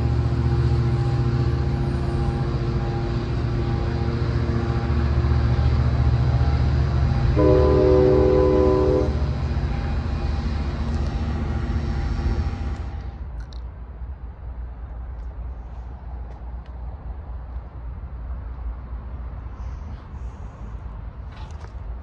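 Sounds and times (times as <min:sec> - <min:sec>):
diesel train engine rumbling: 0:00.0 - 0:22.0
train horn: 0:00.8 - 0:10.4.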